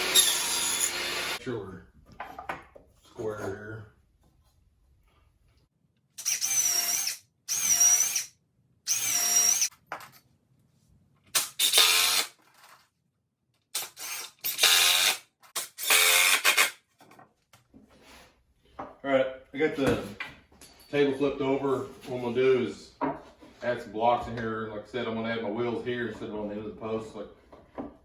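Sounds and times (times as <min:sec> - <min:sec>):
power drill motor whine: 0:00.0 - 0:01.4.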